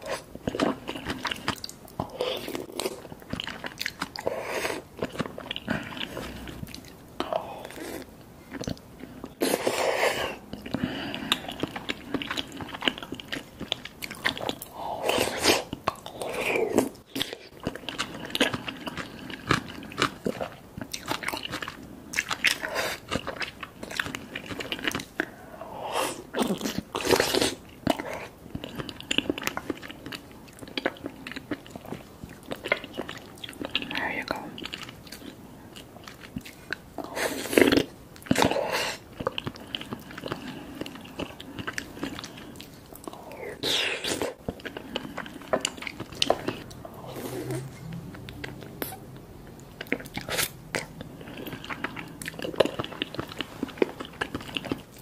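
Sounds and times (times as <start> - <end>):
wet chewing and mouth sounds: 0.0 - 55.0
slurping sauce from a spoon: 50.0 - 50.6.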